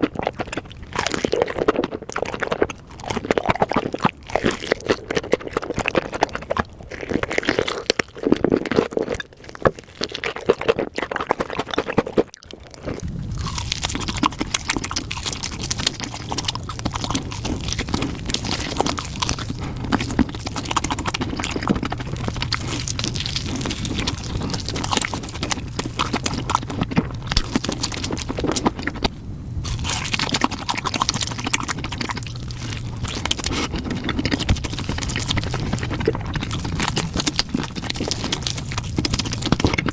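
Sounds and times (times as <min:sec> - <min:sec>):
crunchy chewing and biting: 0:00.0 - 0:39.9
low steady hum: 0:12.4 - 0:39.9
wet mouth clicks: 0:29.7 - 0:39.9.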